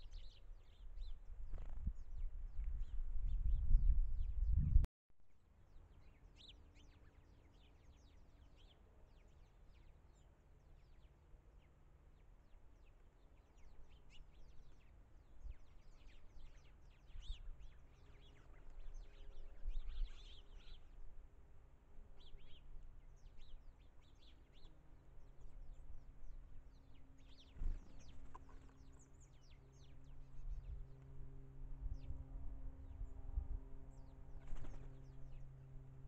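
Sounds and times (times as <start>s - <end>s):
small birds calling: 5.7s - 21.0s, 22.0s - 31.2s
low outdoor rumble: 18.3s - 36.0s.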